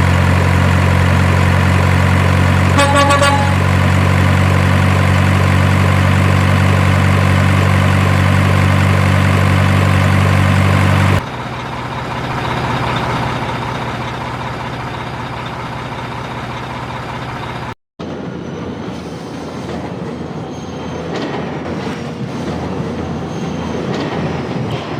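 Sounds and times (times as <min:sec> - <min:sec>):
quiet vehicle rumbling: 0:00.0 - 0:17.8
heavy vehicle engine drone: 0:00.0 - 0:20.2.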